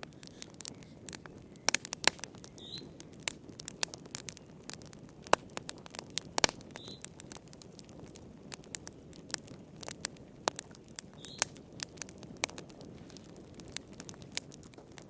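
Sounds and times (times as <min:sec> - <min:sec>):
hiss of flames: 0:00.0 - 0:15.0
wood fire pops and snaps: 0:00.0 - 0:15.0.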